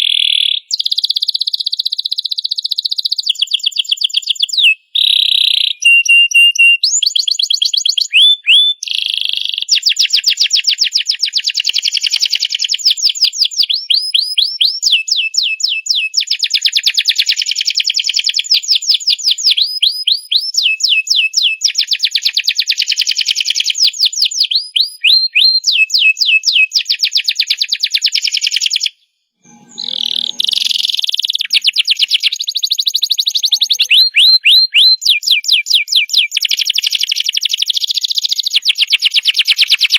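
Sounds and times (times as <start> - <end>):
canary singing trills: 8.0 - 9.8, 29.5 - 39.9.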